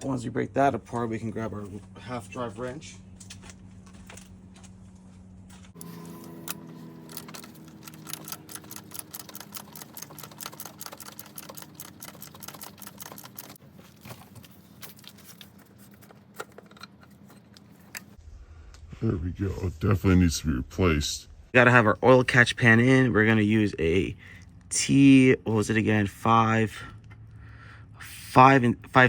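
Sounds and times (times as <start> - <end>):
steady low hum: 0.0 - 29.0
ratchet clicking: 5.8 - 13.6.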